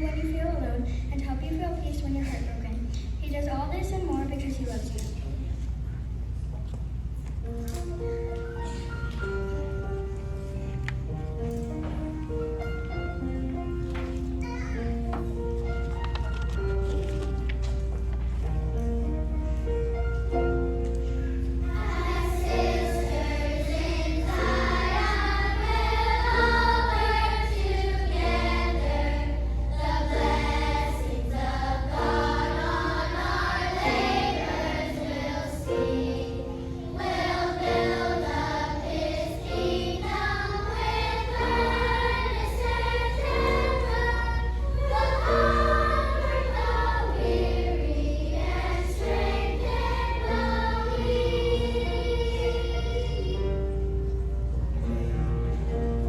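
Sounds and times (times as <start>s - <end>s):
children's choir singing: 21.6s - 54.0s.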